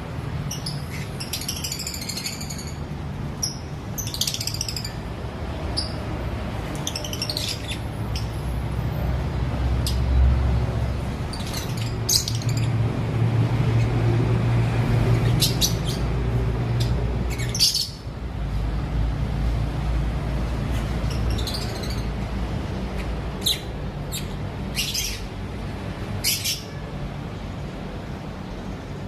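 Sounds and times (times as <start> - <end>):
birds chirping and squawking: 0.4 - 8.5, 9.6 - 18.2, 20.4 - 26.8.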